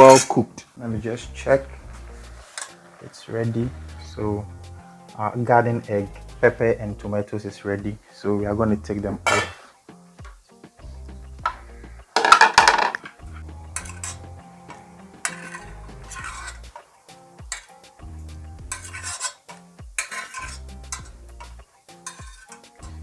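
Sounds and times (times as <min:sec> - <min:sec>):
soft background music: 0:00.0 - 0:23.0
metal utensil scraping a pot: 0:01.9 - 0:03.0, 0:09.2 - 0:09.6, 0:12.2 - 0:17.8, 0:18.6 - 0:23.0.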